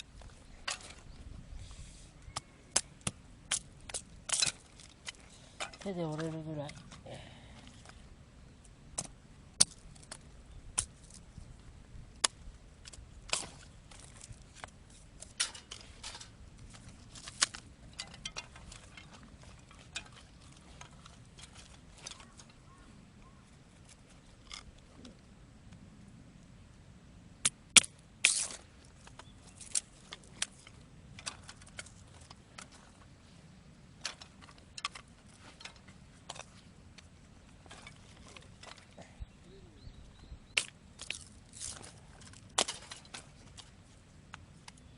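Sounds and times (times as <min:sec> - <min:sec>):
sticks snapping into kindling: 0:02.3 - 0:07.0, 0:12.2 - 0:22.6, 0:27.4 - 0:32.8, 0:40.5 - 0:43.7.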